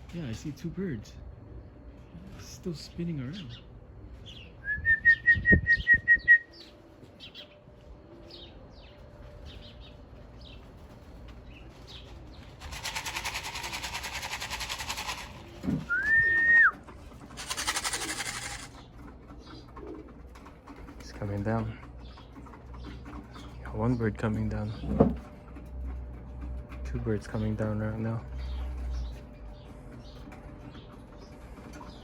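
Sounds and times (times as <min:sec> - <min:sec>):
dense rattling hiss: 0:12.6 - 0:15.5, 0:17.4 - 0:18.7
person whistling: 0:15.9 - 0:16.7
small birds chirping: 0:17.3 - 0:24.9, 0:26.9 - 0:32.0.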